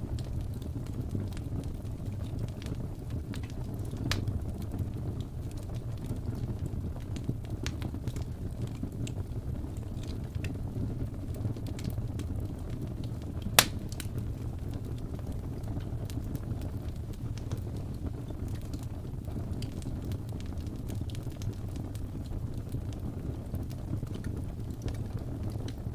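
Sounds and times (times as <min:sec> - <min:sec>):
wood fire crackling: 0:00.0 - 0:25.9
loud fire pop: 0:13.5 - 0:14.1.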